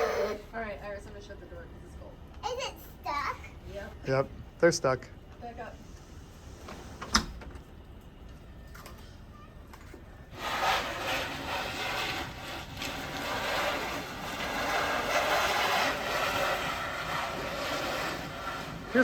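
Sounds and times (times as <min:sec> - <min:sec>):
tyres spinning on ice: 0:10.3 - 0:19.0.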